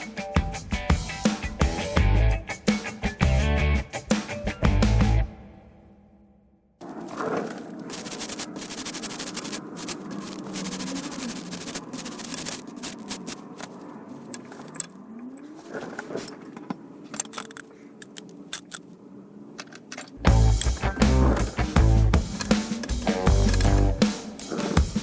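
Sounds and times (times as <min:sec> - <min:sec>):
metal tools clinking and rattling: 0:16.0 - 0:18.7
sharp clicks: 0:22.3 - 0:24.0.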